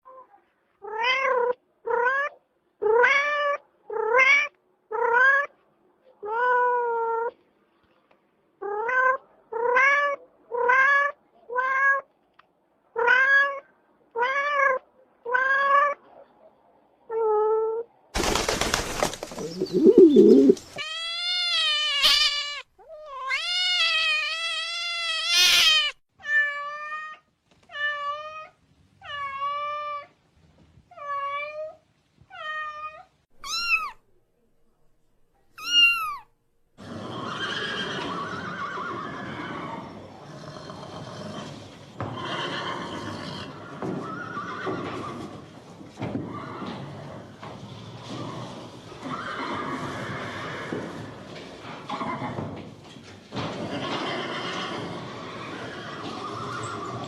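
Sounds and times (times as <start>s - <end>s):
cat meowing: 20.8s - 30.1s, 31.0s - 34.0s, 35.6s - 36.3s.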